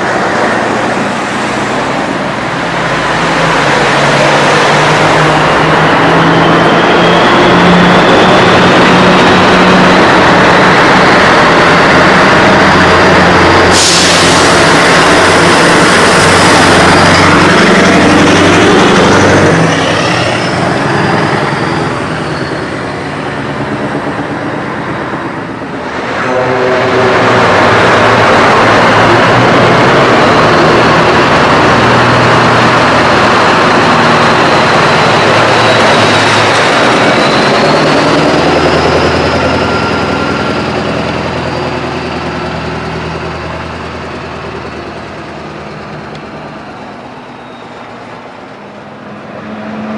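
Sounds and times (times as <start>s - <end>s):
diesel trucks driving past: 0.0s - 49.9s
air brakes hissing: 13.6s - 15.2s.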